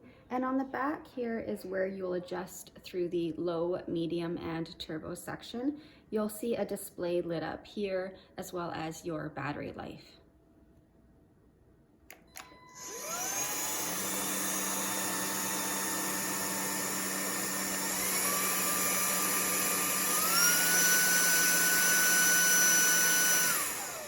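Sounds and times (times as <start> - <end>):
vacuum cleaner motor whine: 12.3 - 24.0.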